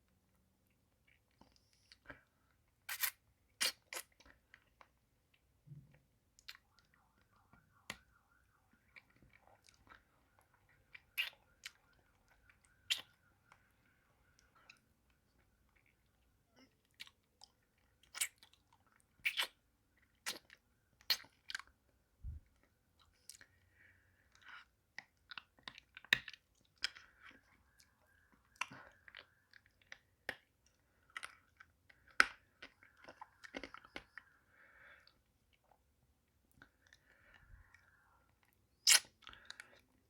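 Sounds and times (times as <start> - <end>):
mouth eating hard candy: 1.0 - 5.4, 14.3 - 21.7, 36.5 - 40.0.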